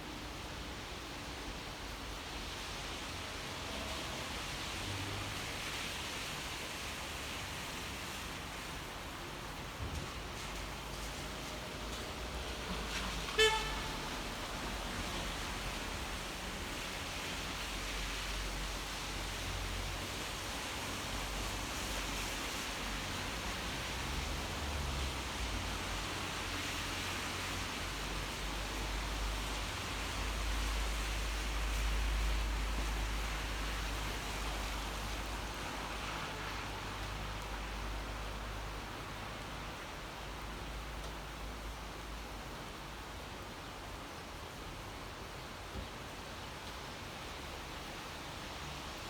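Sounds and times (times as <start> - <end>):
steady rain falling: 0.0 - 49.0
road traffic rumble: 0.1 - 49.0
car horn toot: 13.4 - 14.1.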